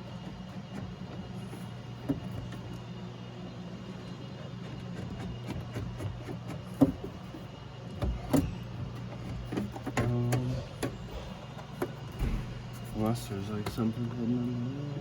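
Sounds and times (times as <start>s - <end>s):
clicks and knocks of car door parts: 5.0s - 13.8s
low hum: 10.0s - 13.7s.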